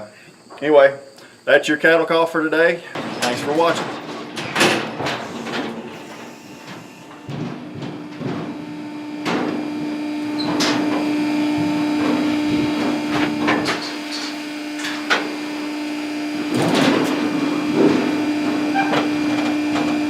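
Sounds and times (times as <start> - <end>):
steady hum: 0.0 - 20.0
metal clanks of cattle gates: 2.9 - 9.7, 10.4 - 12.2, 16.5 - 20.0.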